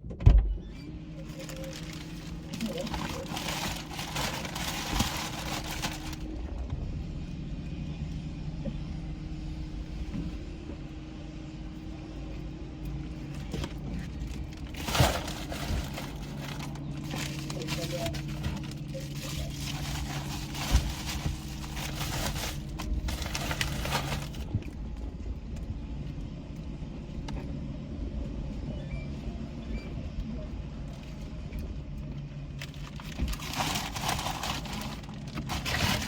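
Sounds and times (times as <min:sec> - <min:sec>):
car engine hum from inside cabin: 0:00.0 - 0:36.0
paper and packages rustling: 0:01.2 - 0:06.4, 0:13.2 - 0:24.8, 0:32.6 - 0:36.0.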